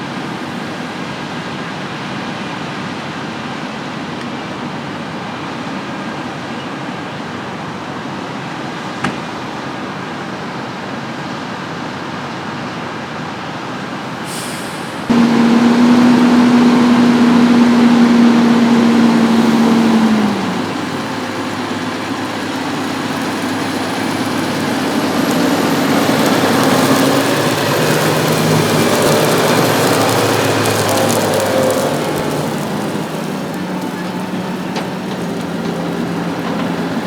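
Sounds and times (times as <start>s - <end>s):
farm machinery running: 14.2s - 37.0s
rushing noise: 14.3s - 37.0s.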